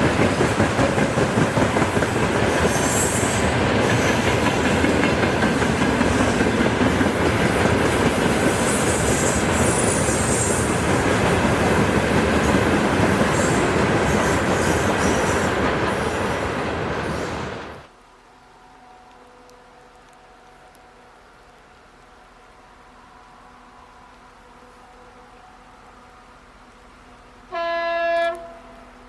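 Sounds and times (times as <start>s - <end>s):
freight train wheels clattering: 0.0s - 17.5s.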